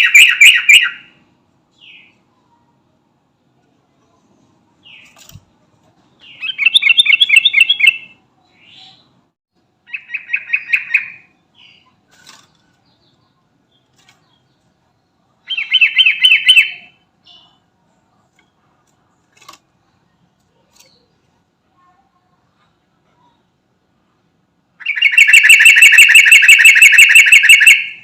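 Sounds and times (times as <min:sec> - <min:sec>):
bulbul singing: 0:00.0 - 0:02.2, 0:06.2 - 0:09.2, 0:15.4 - 0:17.6, 0:24.8 - 0:28.0.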